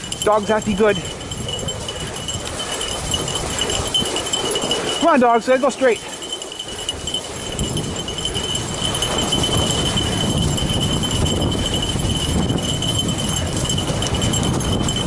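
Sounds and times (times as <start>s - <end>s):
bike tyres and paws crunching snow: 0.0s - 15.0s
thin high tone: 0.0s - 15.0s.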